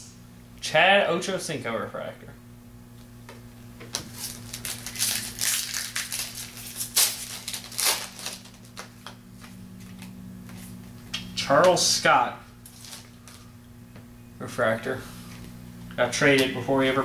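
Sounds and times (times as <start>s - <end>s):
steady low hum: 0.0s - 17.0s
trading cards rustling and clicking: 3.9s - 10.6s.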